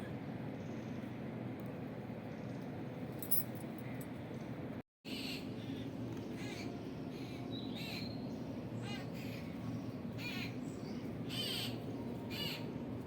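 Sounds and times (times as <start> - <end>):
low background hum: 0.0 - 13.0
birds calling: 5.1 - 12.8.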